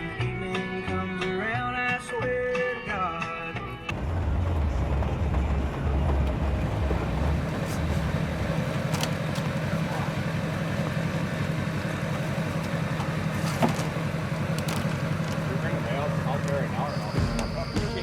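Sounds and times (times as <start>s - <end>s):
country guitar tune: 0.0s - 3.9s
vehicle driving rumble: 3.8s - 18.0s.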